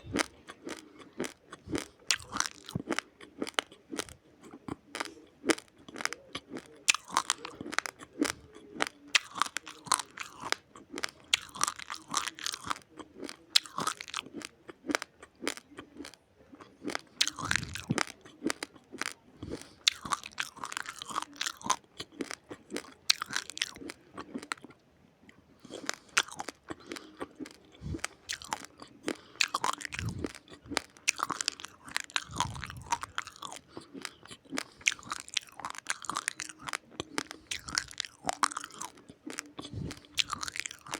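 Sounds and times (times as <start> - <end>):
chewing crunchy rice grains: 0.0 - 40.9.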